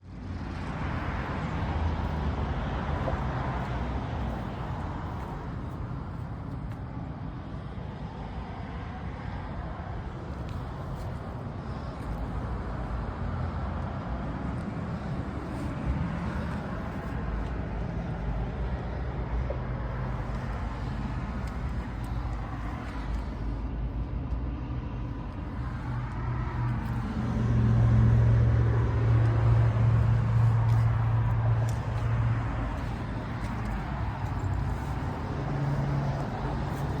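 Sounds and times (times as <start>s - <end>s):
road traffic passing: 0.0s - 37.0s
condenser fan noise: 14.8s - 37.0s.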